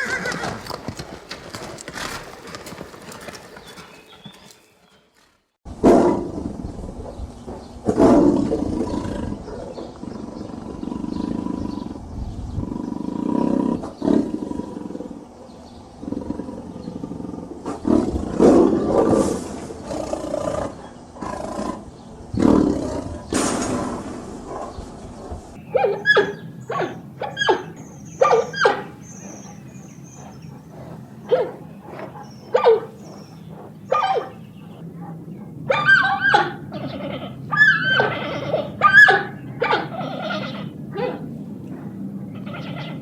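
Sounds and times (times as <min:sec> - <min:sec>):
big cat growling and roaring: 0:05.7 - 0:43.0
animal high-pitched calls: 0:25.7 - 0:29.6, 0:35.7 - 0:41.2, 0:42.3 - 0:43.0.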